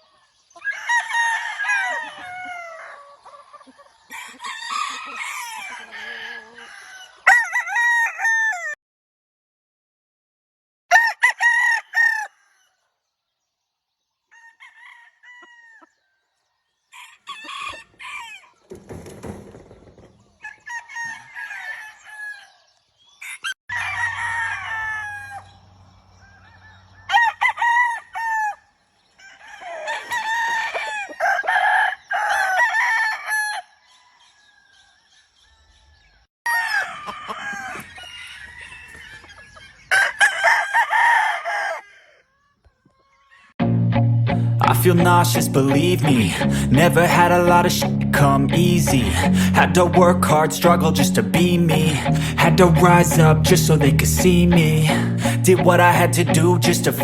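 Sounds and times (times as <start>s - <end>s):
chickens clucking: 0.0s - 7.4s, 17.0s - 32.8s, 36.1s - 40.9s
roosters crowing: 0.0s - 8.8s, 10.9s - 12.9s, 14.2s - 35.1s, 36.5s - 43.6s.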